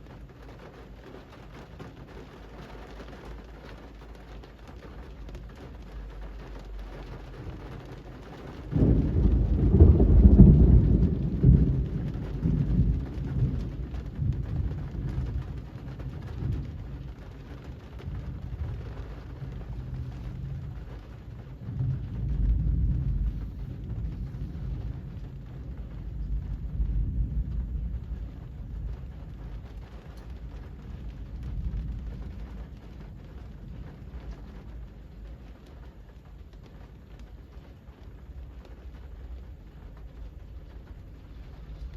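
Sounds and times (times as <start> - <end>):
rain on a street: 0.0 - 41.9
thunder rumbling: 0.0 - 41.9.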